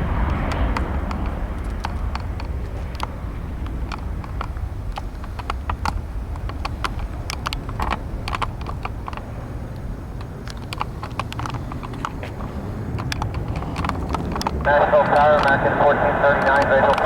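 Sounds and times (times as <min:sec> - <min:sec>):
steady low rumble: 0:00.0 - 0:17.0
sharp clicks and ticks: 0:00.2 - 0:17.0.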